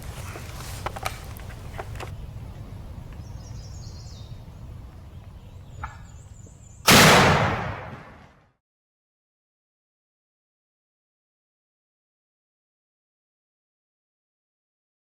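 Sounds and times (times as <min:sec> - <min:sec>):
low outdoor rumble: 0:00.0 - 0:08.3
shotgun blast echoing: 0:06.9 - 0:08.3.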